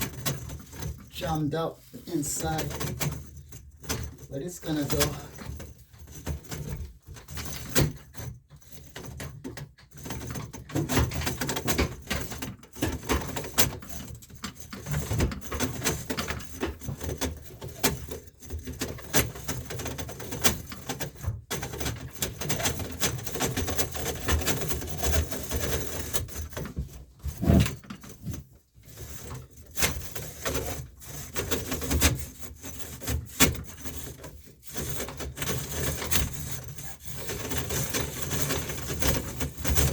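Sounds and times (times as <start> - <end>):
metal drain cable scraping: 26.8 - 28.4.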